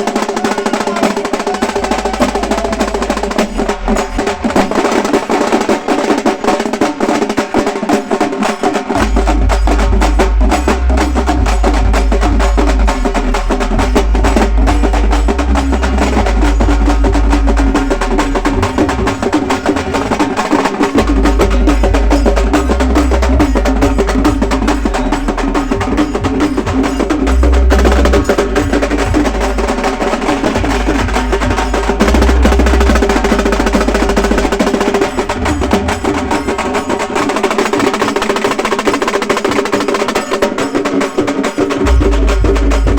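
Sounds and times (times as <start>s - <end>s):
frame drums played fast: 0.0s - 42.9s
deep low drum: 9.0s - 37.0s, 41.8s - 42.9s.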